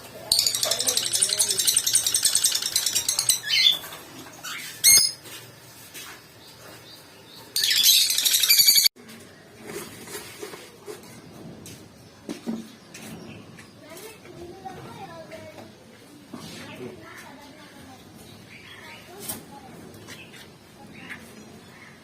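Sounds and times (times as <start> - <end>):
lovebirds chattering: 0.2 - 5.2, 6.4 - 8.9.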